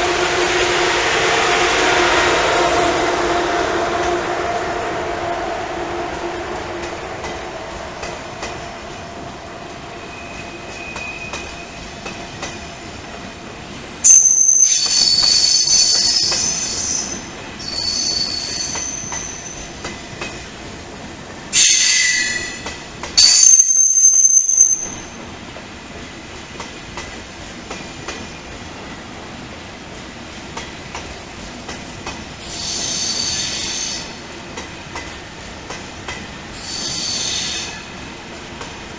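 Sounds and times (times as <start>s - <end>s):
train rumble: 0.0s - 38.9s
train wheels squealing: 9.9s - 12.7s, 14.0s - 19.9s, 21.6s - 25.2s, 32.4s - 34.2s, 36.5s - 38.0s.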